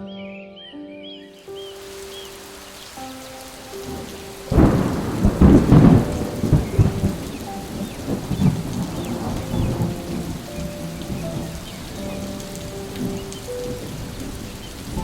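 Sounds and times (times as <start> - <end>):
steady rain: 1.4 - 15.0
thunder clap rolling: 3.8 - 15.0.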